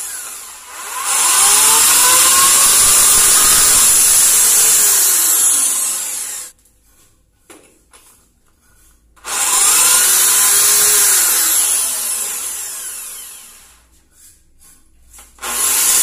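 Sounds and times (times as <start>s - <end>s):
electric drill boring into tile: 0.0s - 6.5s, 9.2s - 13.8s, 15.4s - 16.0s.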